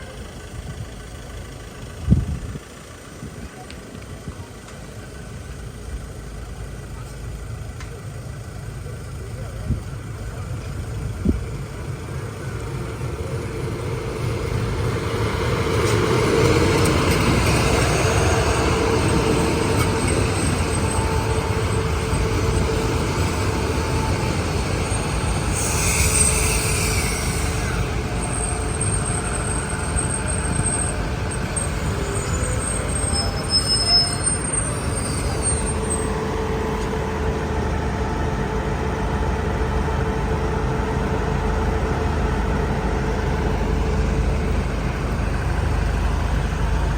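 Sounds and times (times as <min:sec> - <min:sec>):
train rolling rumble: 0:00.0 - 0:46.9
high brake squeals: 0:15.7 - 0:37.0.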